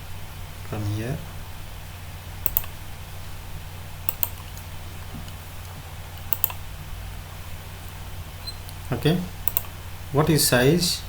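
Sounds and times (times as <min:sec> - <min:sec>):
steady low hum: 0:00.0 - 0:11.0
keyboard keys clicking: 0:02.4 - 0:02.8, 0:04.1 - 0:04.5, 0:06.2 - 0:06.6, 0:09.4 - 0:09.7.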